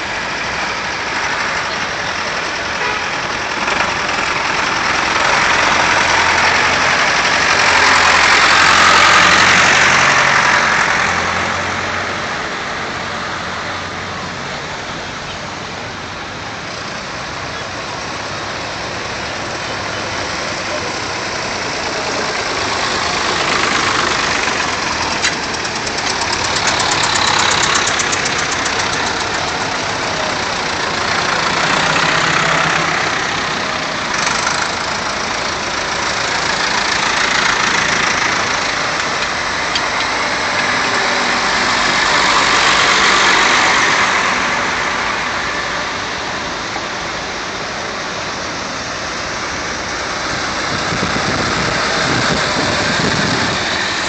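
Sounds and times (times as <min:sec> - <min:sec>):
tractors passing by: 0:00.0 - 0:54.0.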